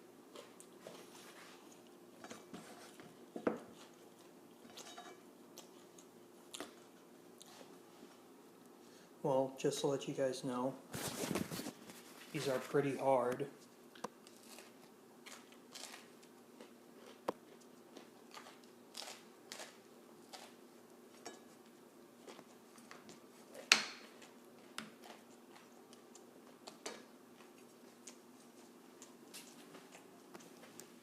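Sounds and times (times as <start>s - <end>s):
person chewing crunchy food: 13.9s - 31.0s.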